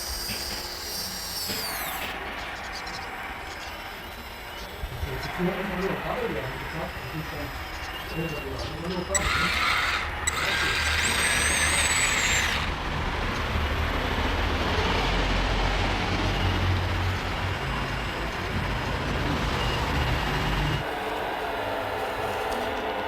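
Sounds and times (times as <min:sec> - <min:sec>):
loud hiss: 0:00.0 - 0:03.5
high electric whine: 0:00.0 - 0:23.0
low mechanical hum: 0:00.0 - 0:23.0.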